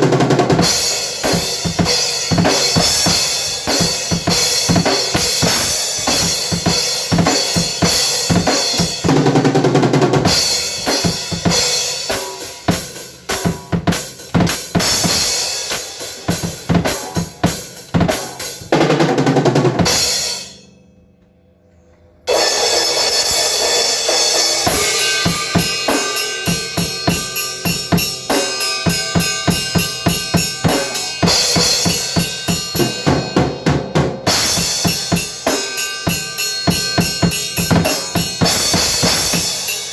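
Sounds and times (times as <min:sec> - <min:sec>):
drum kit playing fast: 0:00.0 - 0:20.6, 0:22.3 - 0:39.9.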